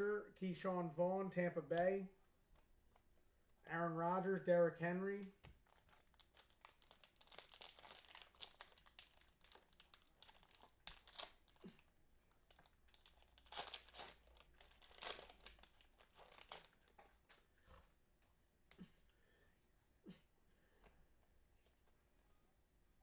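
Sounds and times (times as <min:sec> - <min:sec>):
cellophane wrappers crinkling and tearing: 0:05.3 - 0:17.4.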